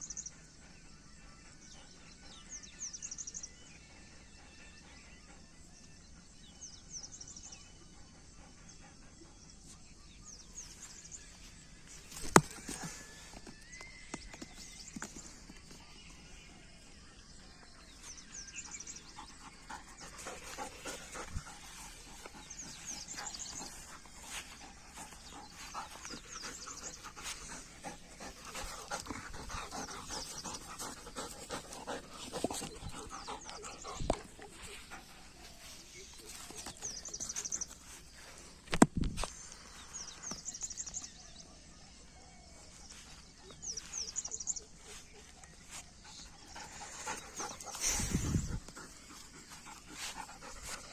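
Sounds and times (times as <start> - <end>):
dog panting: 18.4 - 37.6, 45.8 - 50.9.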